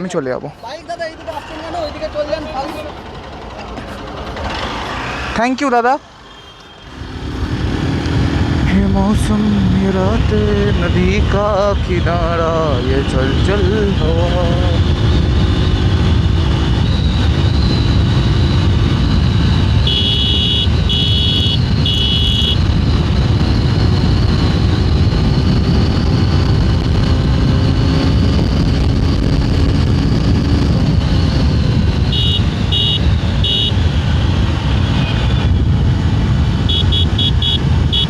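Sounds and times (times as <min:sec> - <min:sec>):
motorcycle engine running: 0:01.1 - 0:05.4, 0:13.0 - 0:38.0
wind rushing on microphone: 0:07.0 - 0:38.0
horn beeps: 0:19.7 - 0:22.7, 0:32.1 - 0:33.8, 0:36.6 - 0:38.0.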